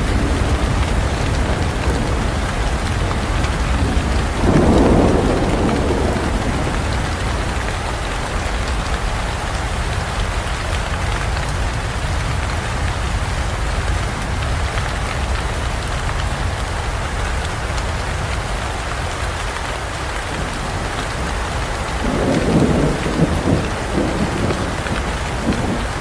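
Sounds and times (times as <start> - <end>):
thunder rolling: 0.0 - 10.0, 20.3 - 26.0
rain falling in forest: 0.0 - 26.0.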